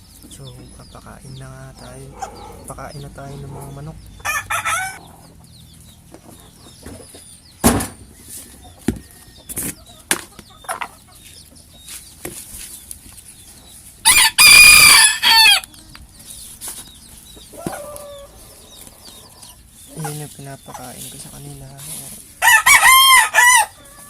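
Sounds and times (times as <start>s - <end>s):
hens and chicks clucking: 0.0s - 24.0s
rooster crowing: 1.8s - 5.2s, 14.0s - 15.7s, 22.4s - 24.0s
knocks: 7.6s - 8.0s.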